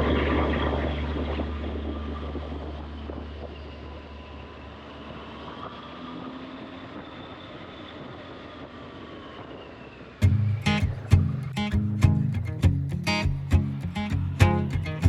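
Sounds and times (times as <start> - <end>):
motor humming with whine: 0.0 - 11.3
strummed guitar music: 10.2 - 15.0.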